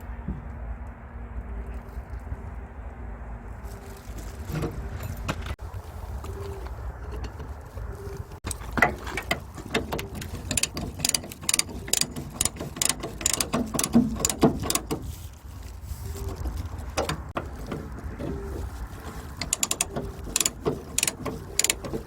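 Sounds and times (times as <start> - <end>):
low steady rumble: 0.0 - 22.0
metallic clicking and knocking: 8.4 - 15.2, 16.4 - 22.0.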